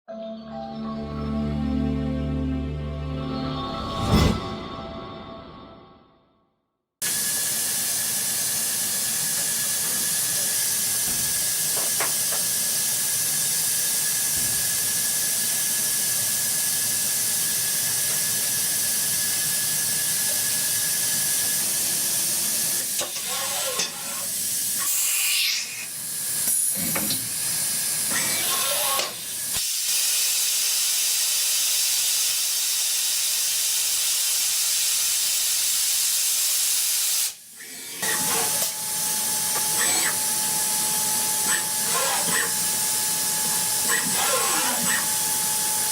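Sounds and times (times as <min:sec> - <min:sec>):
coolant spray hiss: 0:29.2 - 0:37.5
thin machine whine: 0:37.8 - 0:45.9.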